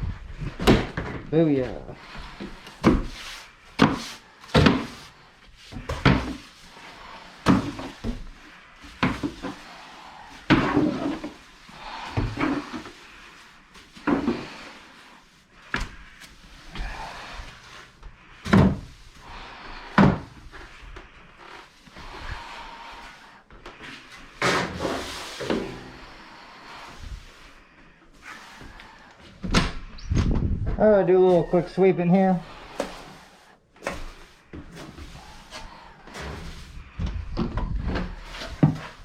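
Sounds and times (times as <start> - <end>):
objects knocking and thumping: 0.3 - 1.3, 3.8 - 5.1, 5.7 - 6.5, 18.4 - 19.0, 33.8 - 39.0.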